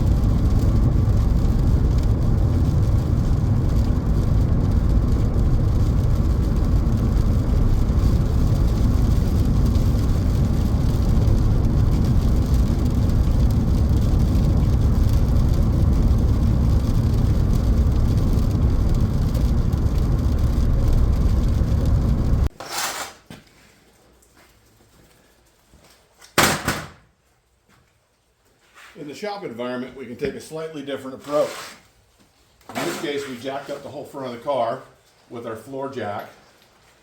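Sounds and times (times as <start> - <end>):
car rumbling on road: 0.0 - 22.5.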